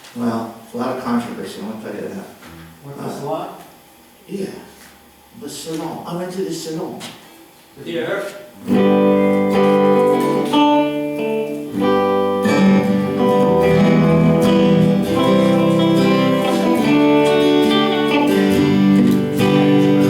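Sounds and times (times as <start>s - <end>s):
acoustic guitar strumming chords: 2.4s - 2.9s, 8.6s - 20.0s.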